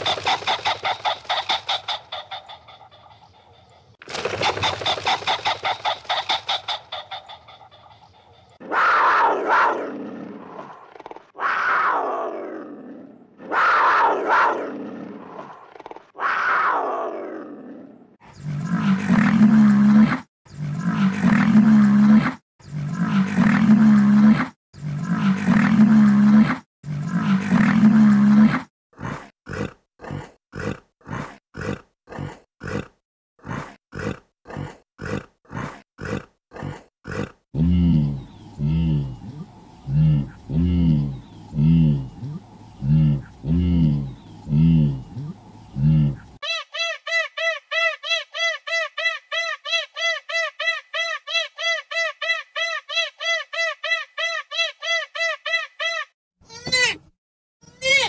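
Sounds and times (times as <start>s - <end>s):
loud animal calls: 0.0s - 12.6s, 13.4s - 17.3s, 37.1s - 52.2s
animal grunts: 16.8s - 46.4s.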